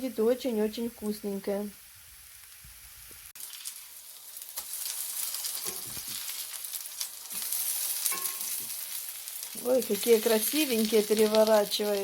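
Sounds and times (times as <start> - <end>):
pancakes sizzling in a frying pan: 0.8 - 12.0.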